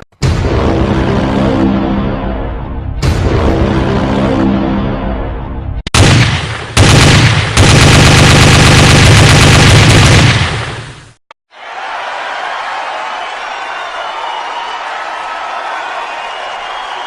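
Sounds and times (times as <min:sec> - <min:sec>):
music: 0:00.2 - 0:05.8
machine-gun fire: 0:06.0 - 0:11.2.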